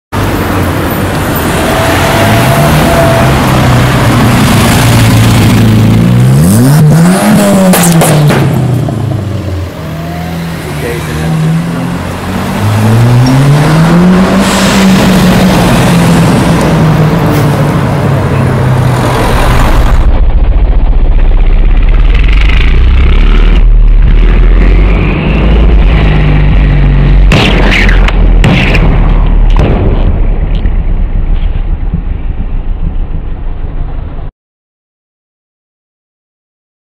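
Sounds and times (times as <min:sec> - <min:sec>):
car engine revving: 0:01.4 - 0:30.6
deep low rumble: 0:19.0 - 0:34.3.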